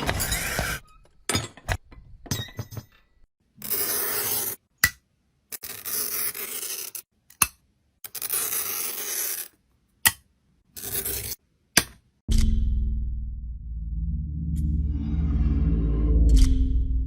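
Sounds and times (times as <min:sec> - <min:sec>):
scratchy scraping strokes: 0:05.6 - 0:07.1, 0:10.8 - 0:11.4.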